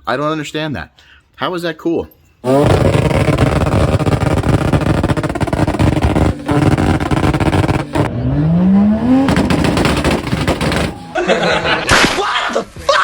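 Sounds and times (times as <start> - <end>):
car engine revving: 2.4 - 11.2
exhaust pops and bangs: 2.5 - 11.2.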